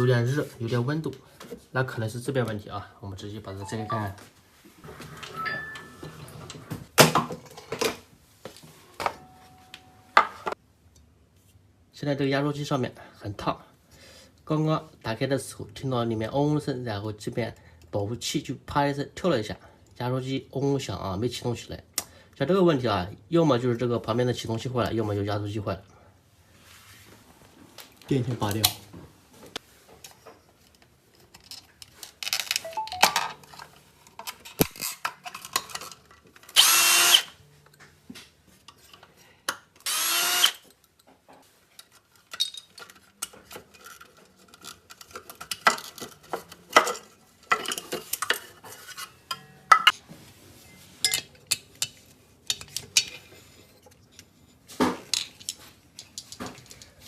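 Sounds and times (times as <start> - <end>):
clicks and knocks of parts handled: 30.0 - 36.6, 40.6 - 50.0, 51.1 - 57.0
power screwdriver running: 36.6 - 37.3, 39.8 - 40.6.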